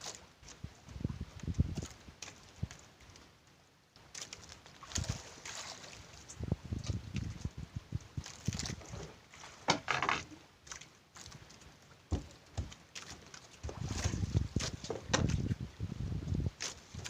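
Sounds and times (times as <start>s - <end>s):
knocks and thumps on a boat: 6.8s - 10.4s, 12.1s - 17.0s.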